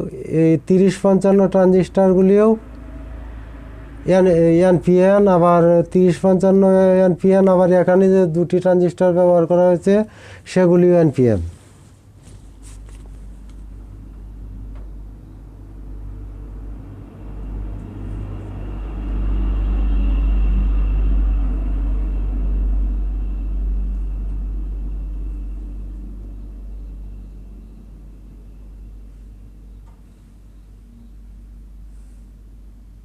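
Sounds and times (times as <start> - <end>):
steady low hum: 0.0 - 33.0
low rumble: 1.6 - 8.1, 13.2 - 33.0.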